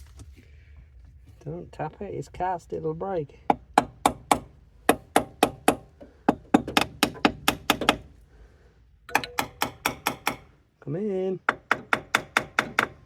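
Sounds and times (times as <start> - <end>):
hammer tapping on metal: 3.5 - 8.1, 9.1 - 10.5, 11.5 - 13.0.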